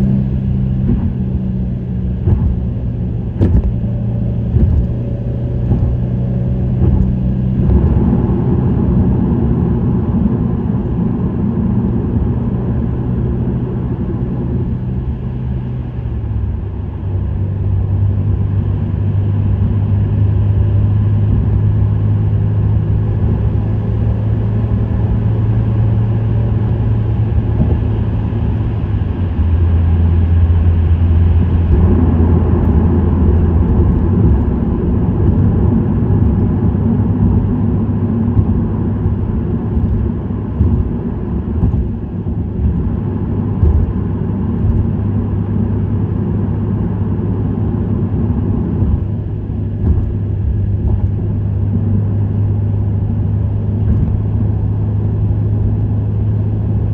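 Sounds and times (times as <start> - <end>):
car engine driving at speed: 0.0 - 56.9.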